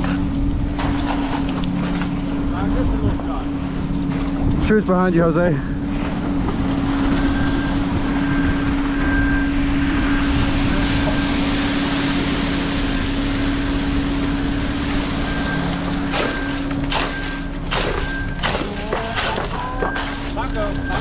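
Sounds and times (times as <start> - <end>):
heavy mechanical noise: 0.0 - 21.0
truck engine humming: 0.0 - 21.0.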